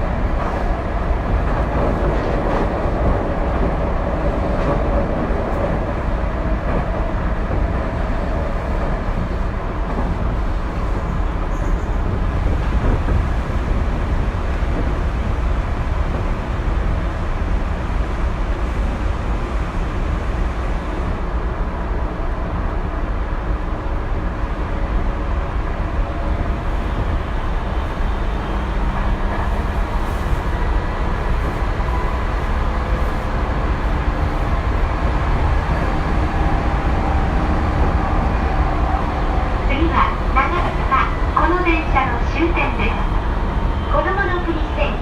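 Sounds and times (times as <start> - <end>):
train wheels rumbling on rails: 0.0 - 45.0.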